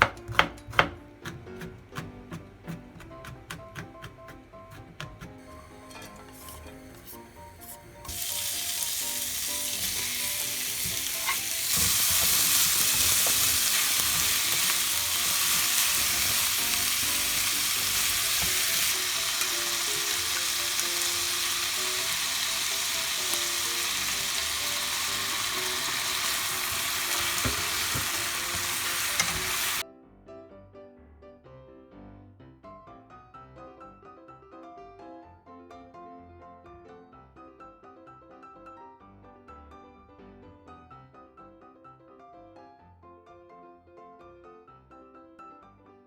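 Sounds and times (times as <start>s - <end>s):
food sizzling in hot oil: 5.4s - 29.8s.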